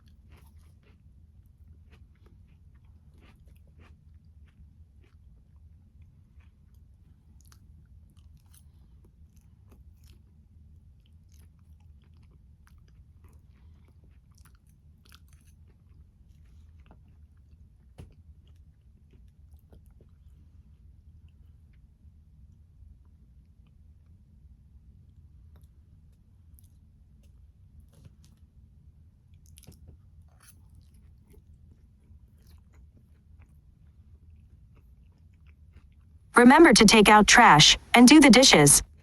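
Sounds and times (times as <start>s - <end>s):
person chewing and crunching: 1.9s - 5.2s.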